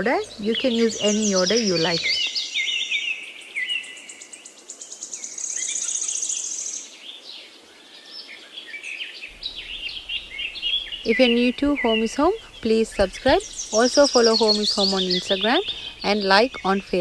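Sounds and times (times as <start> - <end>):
small birds chirping and singing: 0.0 - 17.0
rapid high bird trill: 9.3 - 17.0.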